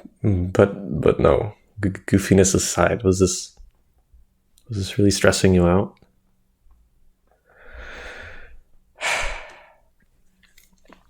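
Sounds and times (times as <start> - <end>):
person breathing: 7.4 - 10.0
person sighing: 7.6 - 9.8.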